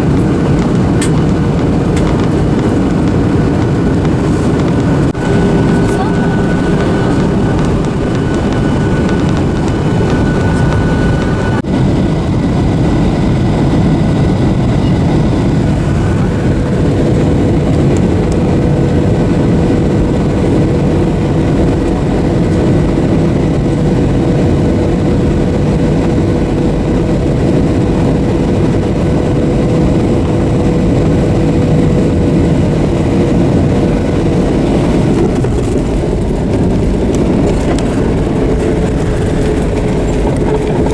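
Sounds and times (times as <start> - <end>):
jet cabin noise: 0.0 - 40.9
steady low hum: 0.0 - 40.9
faint high whine: 2.2 - 11.6.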